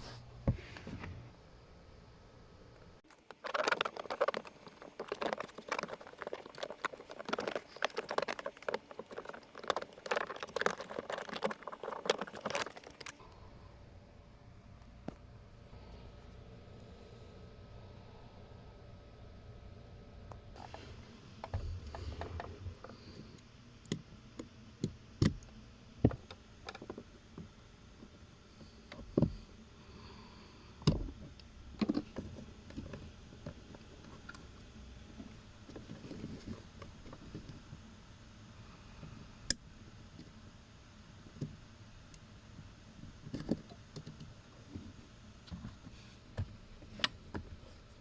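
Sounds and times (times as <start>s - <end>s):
tools and plastic parts clicking: 3.1s - 13.2s.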